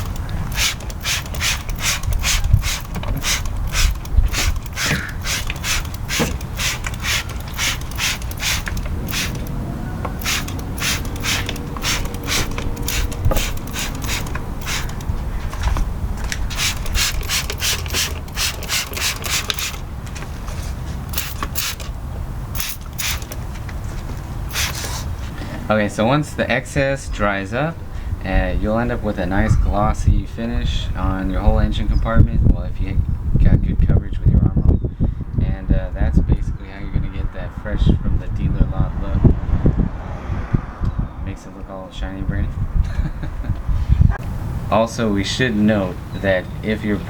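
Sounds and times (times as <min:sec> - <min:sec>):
spray bottle squirting: 0:00.0 - 0:19.9, 0:20.9 - 0:23.5, 0:24.4 - 0:25.2.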